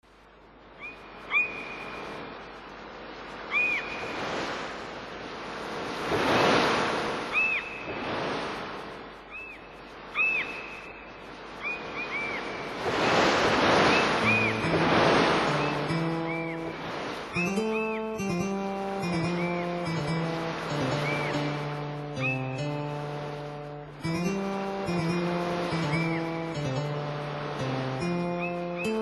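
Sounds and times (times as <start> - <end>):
waves washing: 1.3 - 29.0
musical notes: 14.2 - 29.0.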